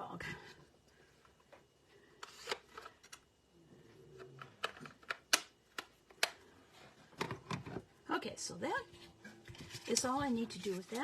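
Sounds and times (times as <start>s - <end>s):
paper rustling: 9.5s - 11.0s.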